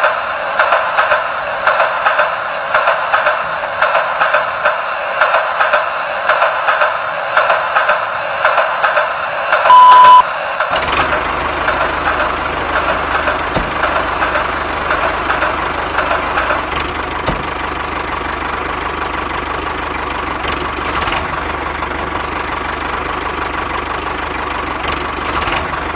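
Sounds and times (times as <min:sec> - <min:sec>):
engine running: 0:00.0 - 0:25.9
loud short beep: 0:09.7 - 0:10.2.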